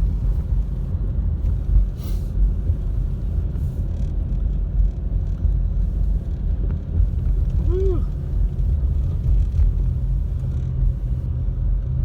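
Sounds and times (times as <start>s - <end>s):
car engine from inside cabin: 0.0s - 12.0s
road rumble: 0.0s - 12.0s.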